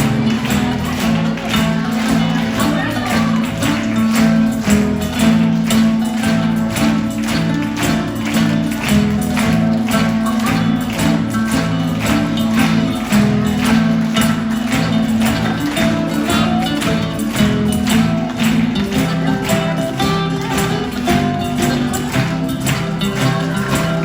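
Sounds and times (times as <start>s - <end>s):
fast strummed guitar music: 0.0s - 24.0s.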